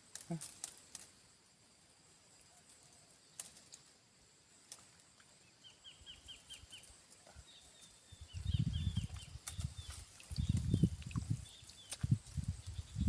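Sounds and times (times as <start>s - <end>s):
bird chirping: 5.3s - 13.0s.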